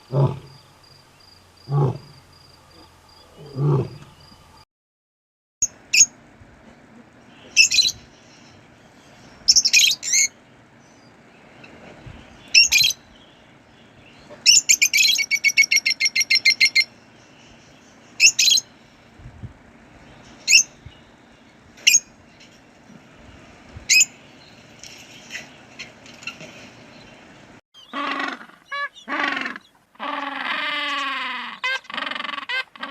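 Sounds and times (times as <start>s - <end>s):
bird calling: 7.3s - 18.8s, 27.8s - 32.9s.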